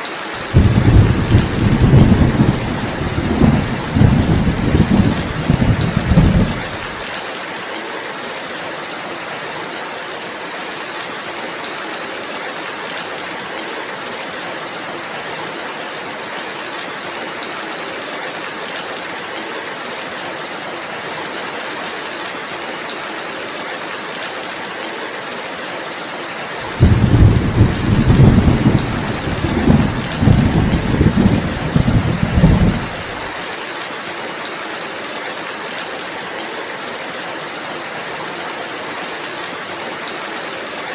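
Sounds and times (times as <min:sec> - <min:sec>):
rainfall hiss: 0:00.0 - 0:40.9
rolling thunder: 0:00.4 - 0:07.0, 0:26.7 - 0:33.3.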